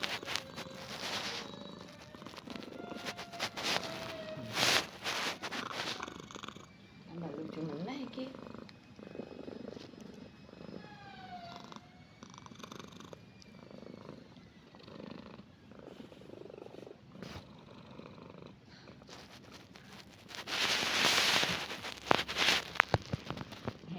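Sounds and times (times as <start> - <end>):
loud rustling: 0.0 - 6.2, 19.1 - 23.9
cat purring: 0.0 - 23.9.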